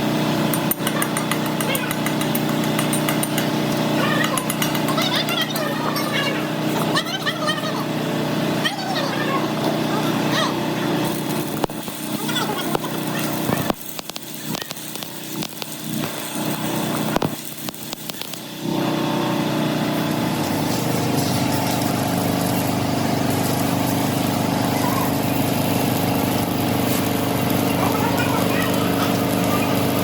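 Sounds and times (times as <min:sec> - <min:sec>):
motor humming: 0:00.7 - 0:30.0.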